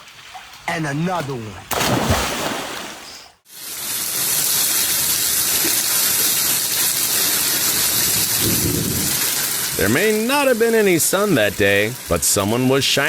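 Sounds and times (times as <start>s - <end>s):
rushing water hiss: 1.8s - 13.0s.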